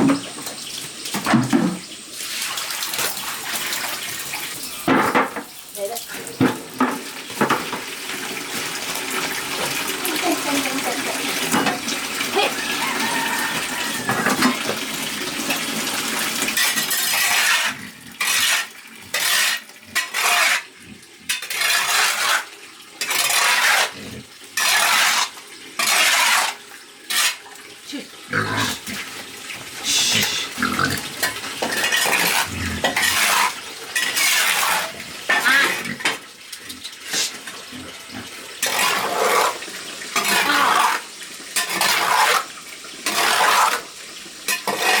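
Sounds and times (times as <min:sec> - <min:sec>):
running water rush: 0:00.0 - 0:20.7, 0:24.6 - 0:45.0
cutlery and dishes clinking: 0:44.5 - 0:45.0.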